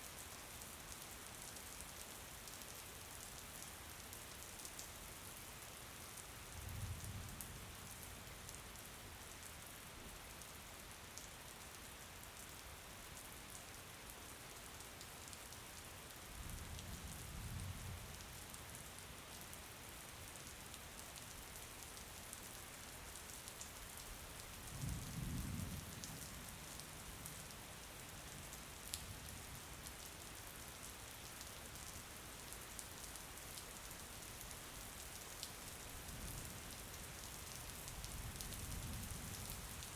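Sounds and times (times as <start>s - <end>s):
steady rain falling: 0.0s - 39.9s
raindrop ticks: 36.8s - 39.9s.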